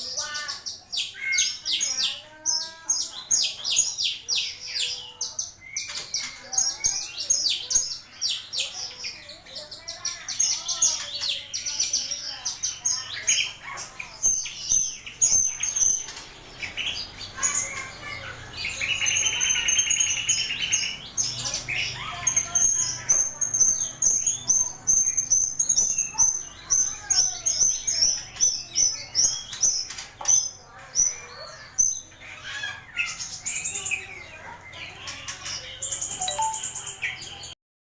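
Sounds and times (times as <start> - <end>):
bird singing rapid chirps: 0.0 - 37.6
buzzy rasping bird phrase: 31.6 - 37.6.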